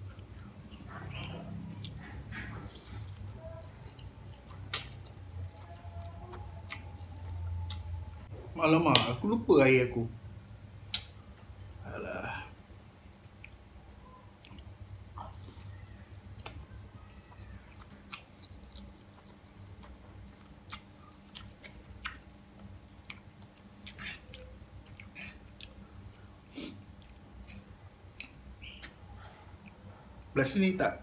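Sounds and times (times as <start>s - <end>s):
man chewing noodles: 0.0s - 8.2s, 14.3s - 30.1s
faint low steady hum: 0.0s - 31.0s.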